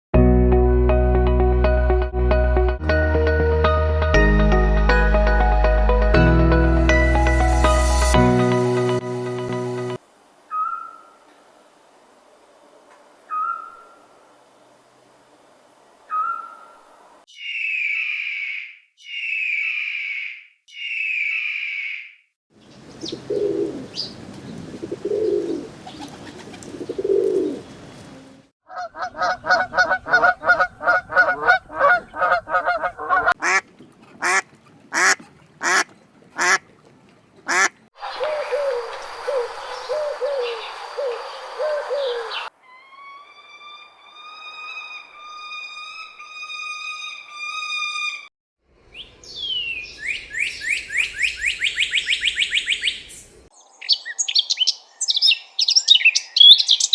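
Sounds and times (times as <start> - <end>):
clear whistled bird notes: 10.5 - 11.1, 17.3 - 22.1, 38.0 - 45.4
rising bird chirps: 10.5 - 11.2, 13.3 - 14.1, 16.1 - 27.7, 37.5 - 45.5, 48.9 - 56.9
low bird calls: 10.5 - 11.3, 13.3 - 14.2, 16.1 - 27.8, 28.7 - 33.6, 37.4 - 43.7
bird chattering: 28.8 - 33.6, 35.0 - 35.8, 37.5 - 42.5
sharp bird notes: 37.5 - 45.5.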